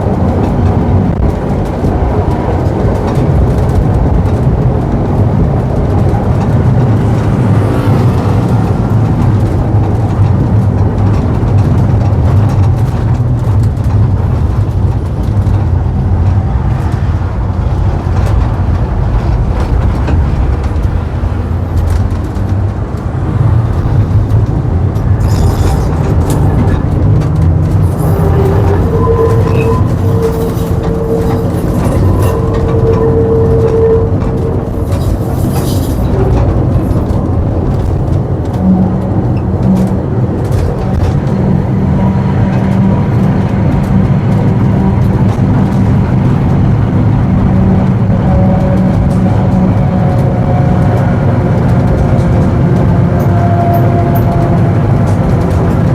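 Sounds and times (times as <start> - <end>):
tram rumbling: 0.0 - 55.9
steady whine: 19.1 - 52.6.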